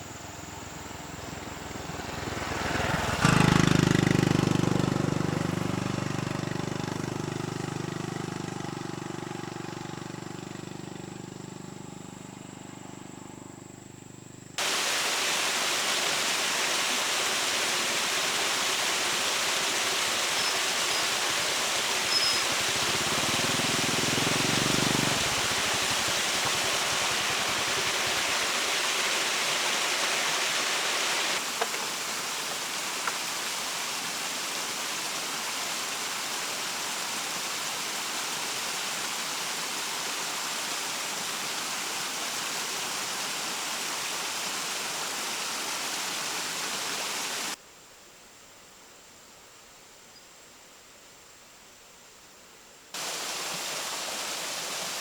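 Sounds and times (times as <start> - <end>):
hissing rushing noise: 14.6 - 33.0.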